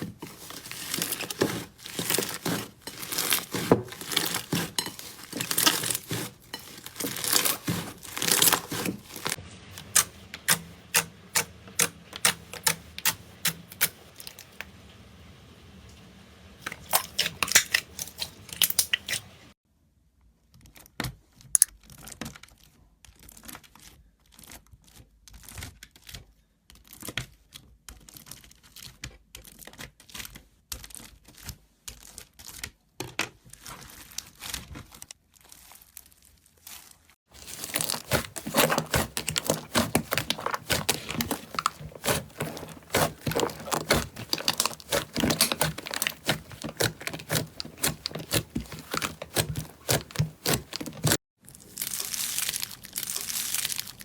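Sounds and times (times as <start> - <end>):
slime loud dense crackling: 0.0 - 9.4, 37.3 - 54.0.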